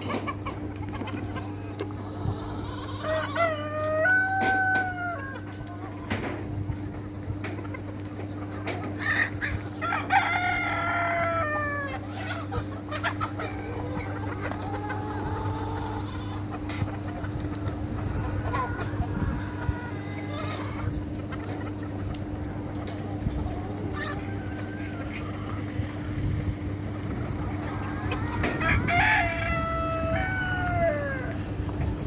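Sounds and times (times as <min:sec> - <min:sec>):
roosters crowing: 0:00.0 - 0:06.6, 0:09.0 - 0:21.9, 0:22.5 - 0:32.0
chickens clucking: 0:00.0 - 0:32.0
steady low hum: 0:12.0 - 0:32.0.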